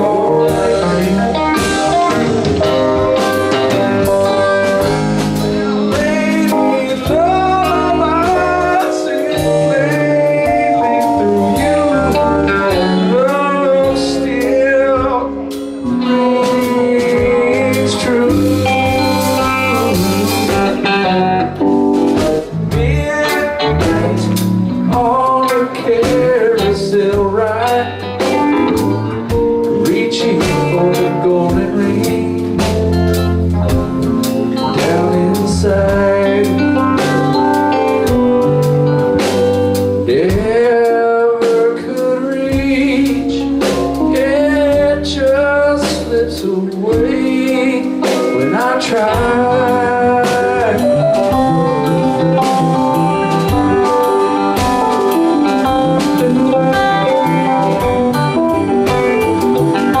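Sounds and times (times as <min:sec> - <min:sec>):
lead guitar bending notes: 0:00.0 - 1:00.0
rock band playing: 0:00.0 - 1:00.0.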